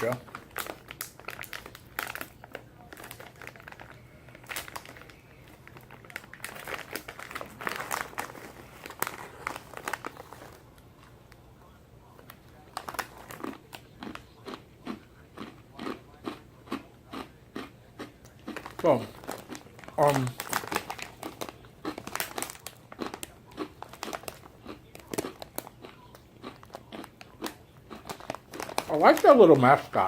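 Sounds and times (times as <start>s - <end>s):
plastic snack bag crinkling: 0.0s - 11.4s, 12.1s - 30.0s
crunchy chewing: 12.3s - 30.0s.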